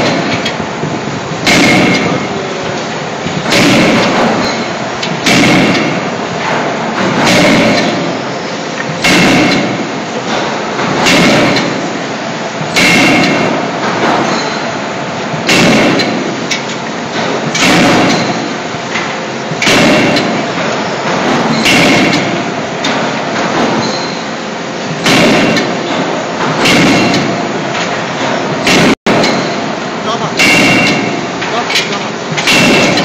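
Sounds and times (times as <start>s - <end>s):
forging hammer blows: 1.4s - 2.5s, 3.4s - 8.3s, 9.0s - 12.0s, 12.7s - 14.6s, 19.6s - 24.3s, 25.0s - 27.5s, 30.4s - 33.0s.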